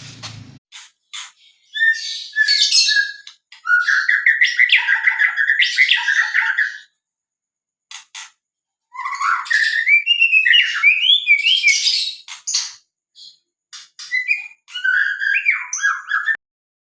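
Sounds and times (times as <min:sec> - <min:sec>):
bird singing whistles: 0:01.4 - 0:06.9, 0:08.9 - 0:13.4, 0:14.0 - 0:16.4.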